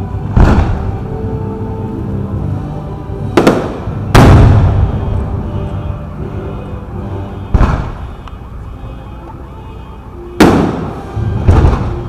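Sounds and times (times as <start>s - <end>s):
fireworks bangs: 0.0s - 1.2s, 3.3s - 5.4s, 7.4s - 8.2s, 10.4s - 12.0s.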